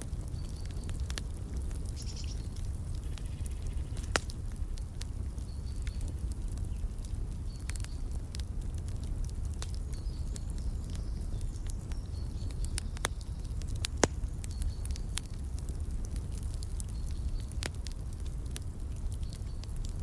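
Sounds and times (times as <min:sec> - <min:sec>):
wood fire crackling: 0:00.0 - 0:20.0
faint high bird chirps: 0:02.0 - 0:04.0.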